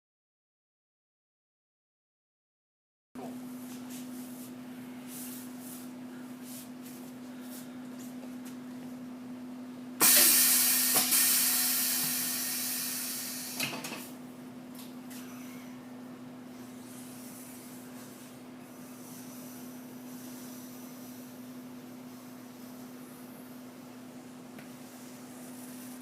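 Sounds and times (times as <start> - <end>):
machine electric hum: 3.2 - 26.0
loud air hiss: 10.0 - 13.7.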